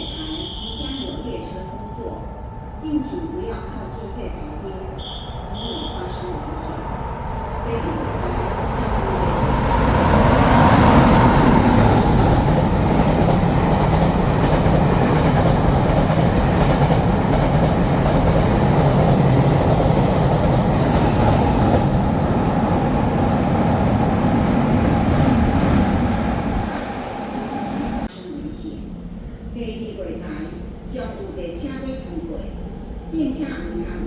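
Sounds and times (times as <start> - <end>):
train passing at speed: 0.0 - 34.0.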